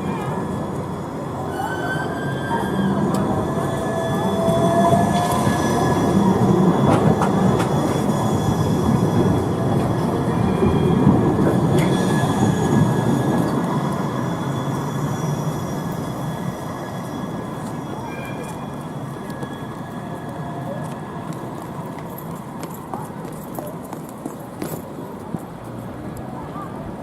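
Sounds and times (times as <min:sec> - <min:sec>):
high-pitched wheel squeal: 0:00.0 - 0:20.8
tram rolling rumble: 0:00.0 - 0:27.0.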